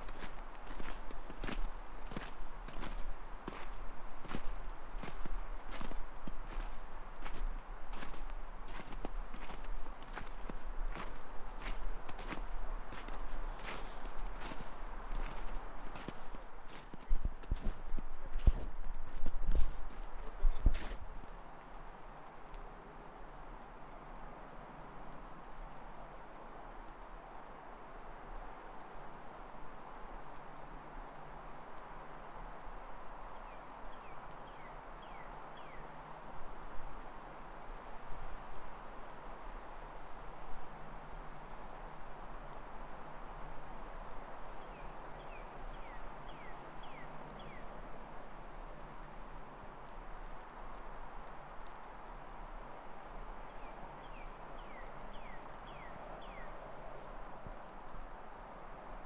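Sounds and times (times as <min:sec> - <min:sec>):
footsteps crunching in wet snow: 0:00.0 - 0:21.4.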